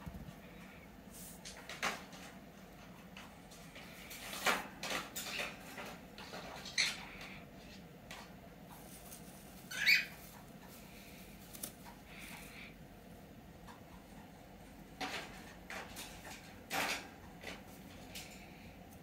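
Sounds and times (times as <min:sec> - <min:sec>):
soft rustles: 0:05.6 - 0:16.8
birds squeaky calls: 0:09.7 - 0:10.4.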